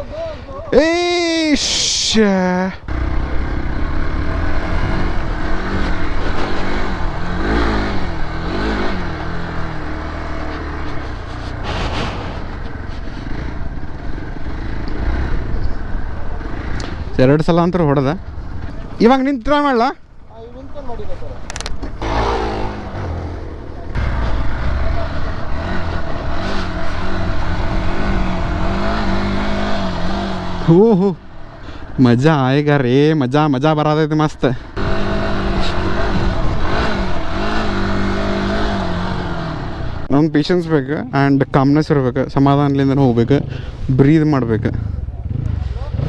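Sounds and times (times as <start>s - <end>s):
low rumble: 2.9s - 16.3s
dirt bike engine revving: 2.9s - 17.2s, 21.6s - 31.7s, 34.8s - 40.1s, 44.4s - 46.0s.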